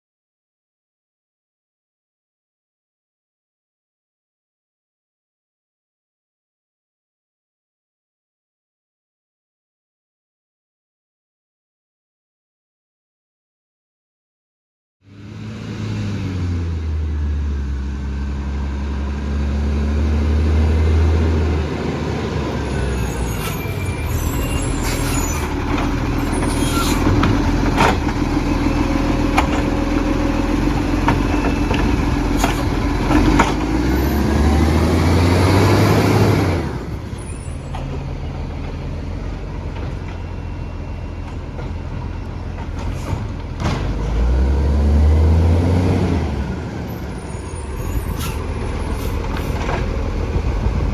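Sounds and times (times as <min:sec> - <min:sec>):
garbage truck engine running: 0:16.9 - 0:50.9.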